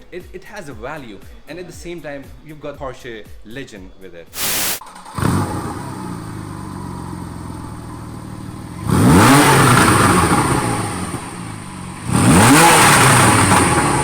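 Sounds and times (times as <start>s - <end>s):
sports car engine revving: 4.4s - 14.0s.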